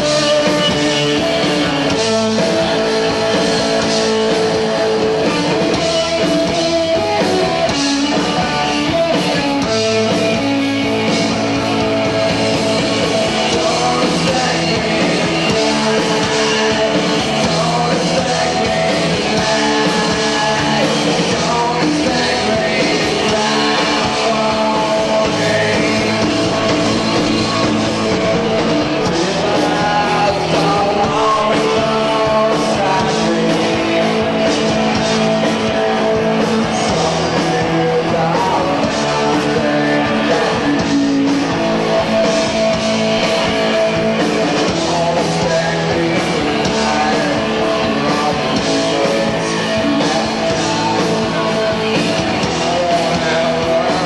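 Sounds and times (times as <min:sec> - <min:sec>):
bass guitar: 0:00.0 - 0:54.0
distorted electric guitar: 0:00.0 - 0:54.0
drums: 0:00.0 - 0:54.0
person singing: 0:00.0 - 0:54.0.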